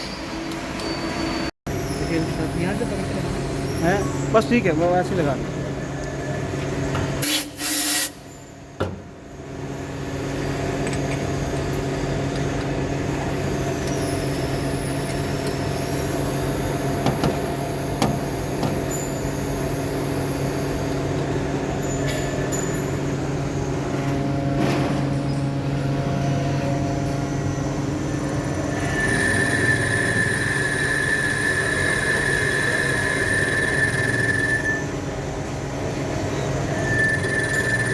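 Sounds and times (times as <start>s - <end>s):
workshop machine humming: 0.3s - 37.9s
high steady squeal: 26.1s - 35.0s, 36.2s - 37.9s.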